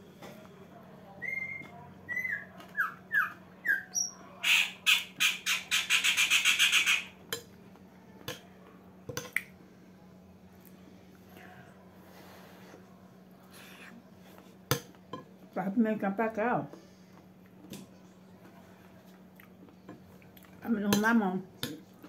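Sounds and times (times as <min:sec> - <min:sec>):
bird squawking: 0:01.3 - 0:07.2.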